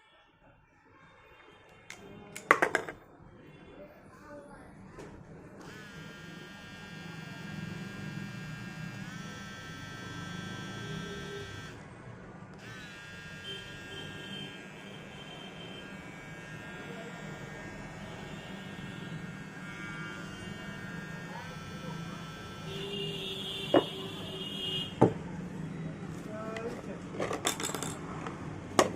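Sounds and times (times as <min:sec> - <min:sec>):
hair trimmer motor whining: 0:05.6 - 0:11.8, 0:12.6 - 0:15.1, 0:15.8 - 0:22.9.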